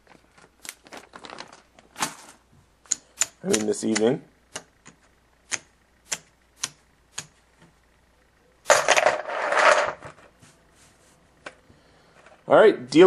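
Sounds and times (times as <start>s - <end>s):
sharp clicks: 2.8s - 7.4s.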